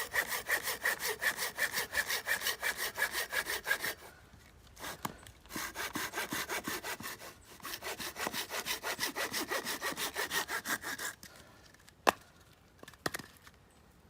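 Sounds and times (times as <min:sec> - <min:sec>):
hand saw cutting wood: 0:00.0 - 0:04.1, 0:04.8 - 0:11.3.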